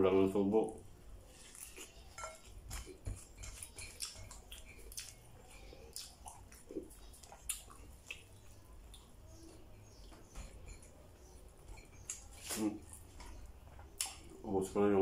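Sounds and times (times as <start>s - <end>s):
man chewing food: 0.7s - 14.4s
mouth smacks and clicks: 3.6s - 9.2s.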